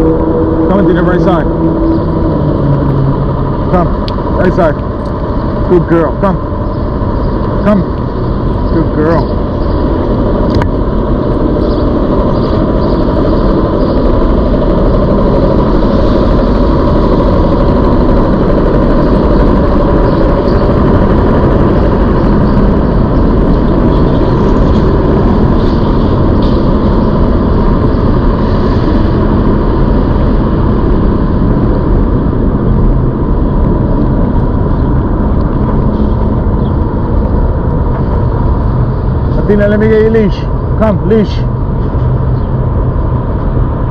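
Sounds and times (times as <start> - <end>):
electric bike rolling noise: 0.0 - 43.9
wind rush: 0.0 - 43.9.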